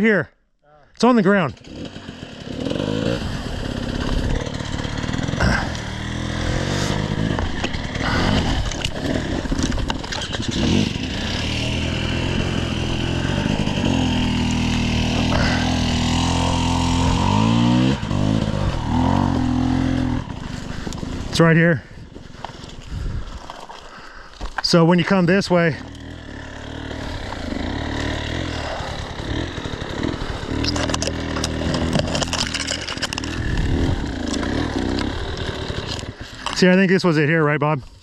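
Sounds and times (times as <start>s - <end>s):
dirt bike engine: 0.8s - 38.0s
knocks and clatters: 30.6s - 33.4s.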